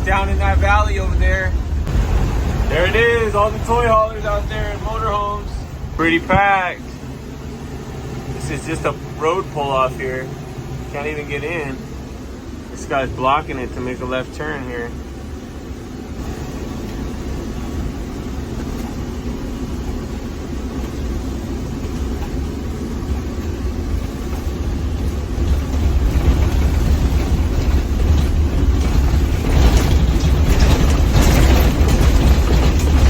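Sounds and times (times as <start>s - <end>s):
engine and road noise rumble: 0.0s - 33.0s.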